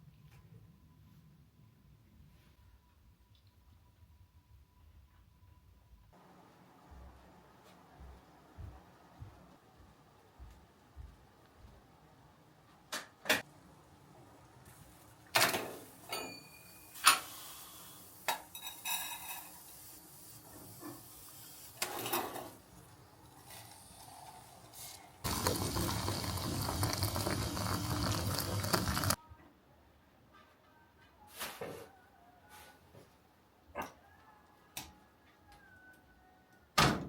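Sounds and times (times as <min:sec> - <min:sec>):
dishes and utensils clattering: 0:15.4 - 0:17.3, 0:18.2 - 0:19.8, 0:21.8 - 0:22.6.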